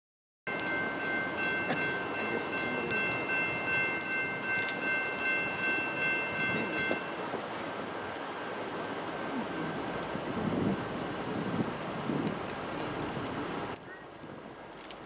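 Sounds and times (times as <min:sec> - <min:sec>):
chord of high steady tones: 0:00.5 - 0:07.3
distant freight train rushing: 0:00.5 - 0:09.7.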